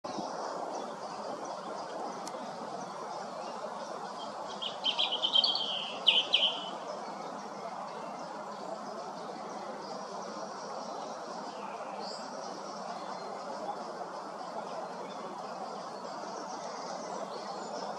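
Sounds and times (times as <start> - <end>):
steady background hiss: 0.1 - 17.9
robin singing: 0.2 - 13.8.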